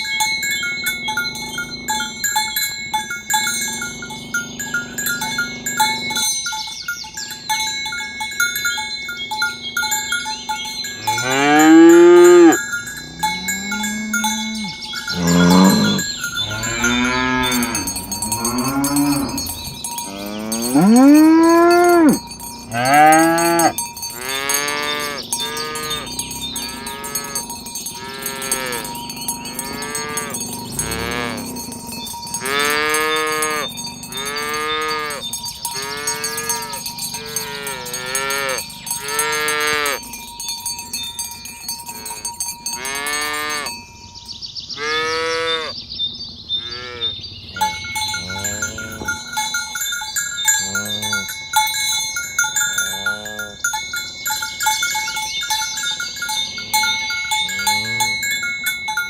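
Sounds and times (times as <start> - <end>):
cattle mooing: 0.9 - 2.4, 3.6 - 6.3, 11.0 - 40.0, 46.6 - 49.4, 50.5 - 51.4, 52.7 - 53.7, 56.4 - 58.4.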